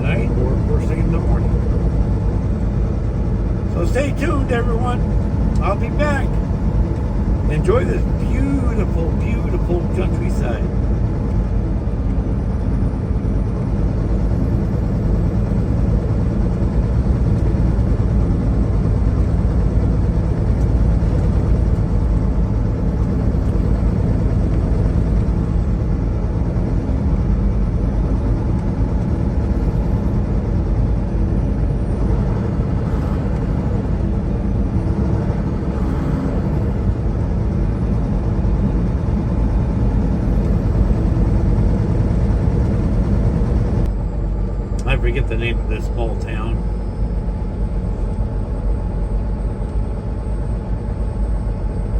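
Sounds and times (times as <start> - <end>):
road noise: 0.0 - 26.4, 28.6 - 48.0
truck engine drone: 0.0 - 51.9.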